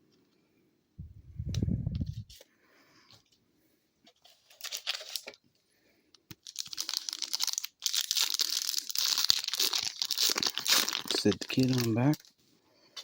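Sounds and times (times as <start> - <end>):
wrapper tearing and crinkling: 4.4 - 5.3, 6.4 - 12.3.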